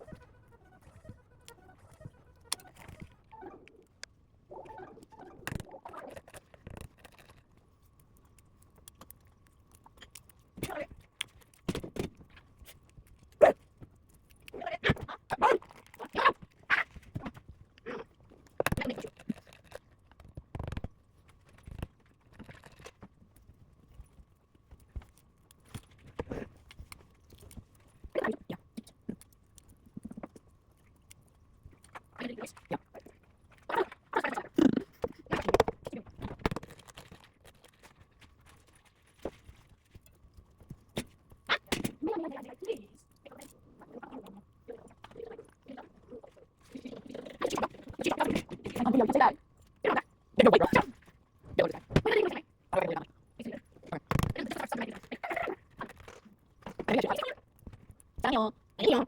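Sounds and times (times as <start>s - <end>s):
wet chewing and smacking: 0.0s - 41.7s.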